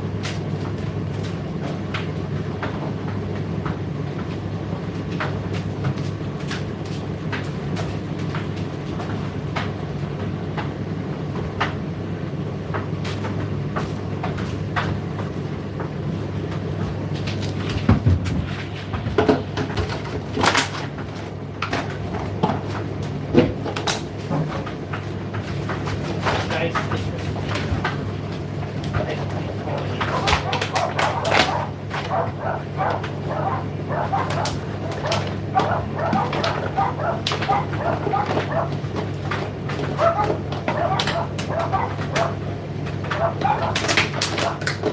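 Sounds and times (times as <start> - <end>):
tumble dryer motor hum: 0.0 - 44.9
clicks from tumbling load: 12.8 - 44.9
louder knocks in dryer: 17.8 - 19.8.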